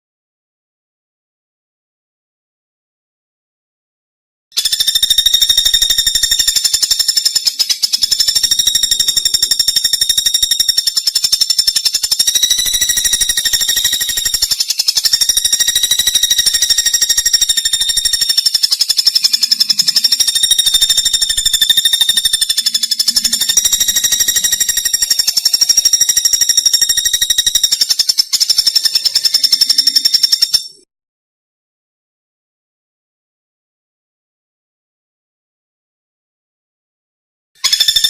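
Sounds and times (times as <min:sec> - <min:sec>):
high-pitched buzzing bird trill: 0:04.6 - 0:30.9, 0:37.6 - 0:38.0.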